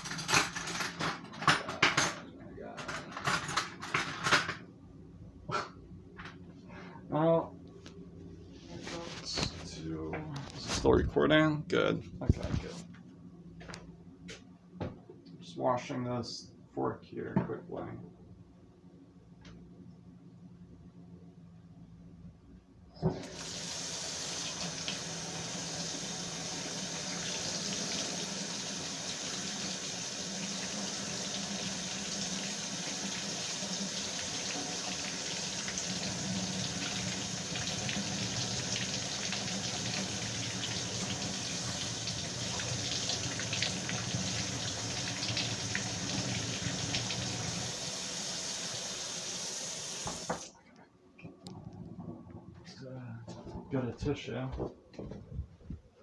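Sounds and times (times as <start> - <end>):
water running into sink: 23.0 - 50.5
tap turned on with a knock: 50.0 - 50.5.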